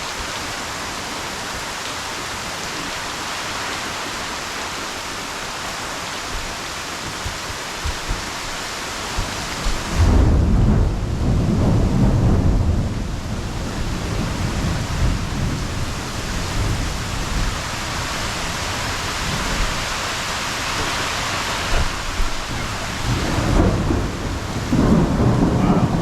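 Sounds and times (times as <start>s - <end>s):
heavy rain: 0.0s - 26.0s
thunder rumbling: 7.2s - 26.0s.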